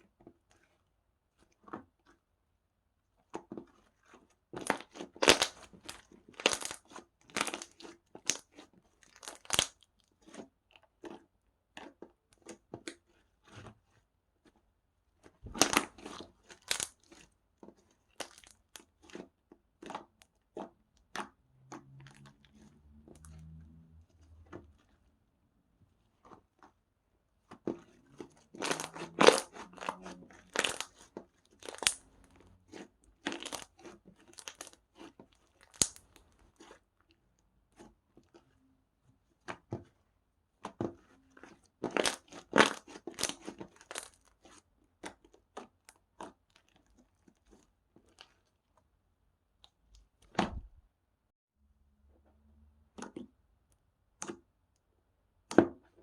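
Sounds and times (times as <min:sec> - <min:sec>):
slime crackling and popping: 0:04.6 - 0:09.9, 0:15.4 - 0:17.2, 0:18.1 - 0:19.2, 0:28.2 - 0:36.8, 0:41.8 - 0:44.5.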